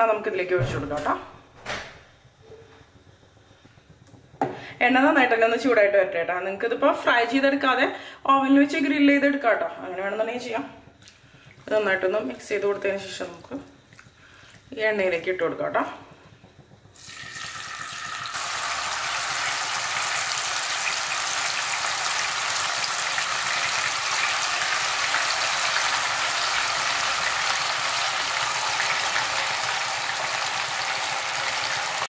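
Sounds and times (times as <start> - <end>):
chicken sizzling in hot oil: 11.1 - 32.0.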